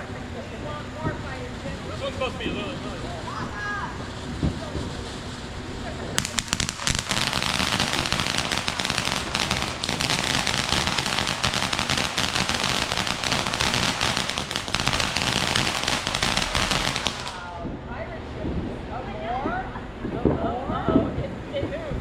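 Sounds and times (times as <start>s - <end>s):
firecrackers banging: 3.4s - 18.7s.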